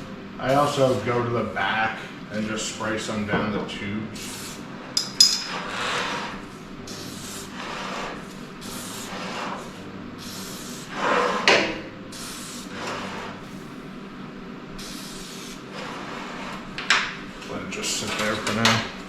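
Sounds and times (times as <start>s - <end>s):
aerosol can spraying: 8.2s - 9.6s, 10.2s - 11.2s, 12.1s - 13.9s, 14.8s - 15.6s.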